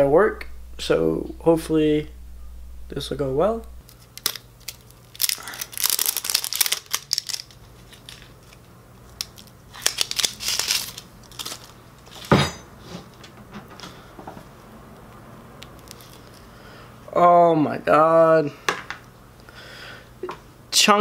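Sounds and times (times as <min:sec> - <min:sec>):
plastic seal tearing: 0:03.9 - 0:08.3, 0:09.2 - 0:11.7.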